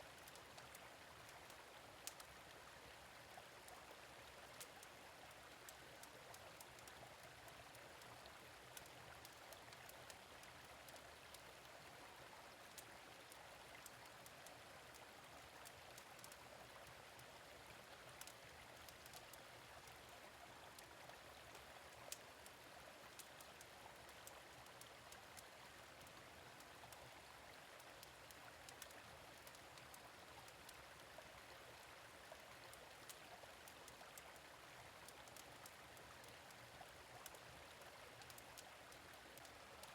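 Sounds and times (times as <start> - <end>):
gentle stream flowing: 0.0 - 39.9.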